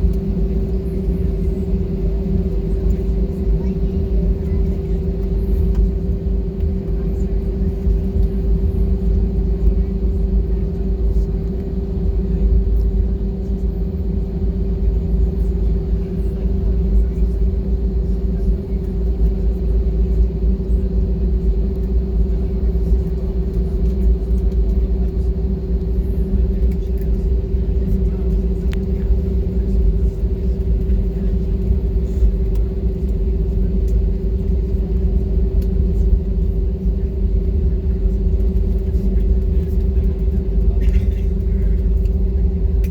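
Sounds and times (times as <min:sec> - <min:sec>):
constant hum: 0:00.0 - 0:42.9
jet engine low rumble: 0:00.0 - 0:42.9.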